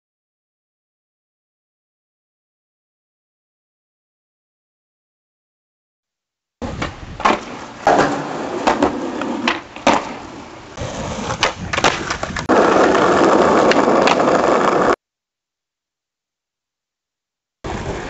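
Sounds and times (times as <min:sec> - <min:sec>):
skateboard clacking on ground: 0:06.6 - 0:15.0
skateboard wheels rolling: 0:06.6 - 0:15.0, 0:17.7 - 0:18.0.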